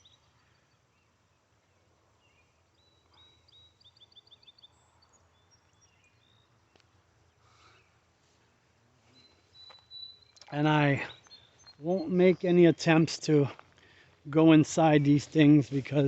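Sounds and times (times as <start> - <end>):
small bird chirping: 2.2 - 8.0, 9.1 - 12.1.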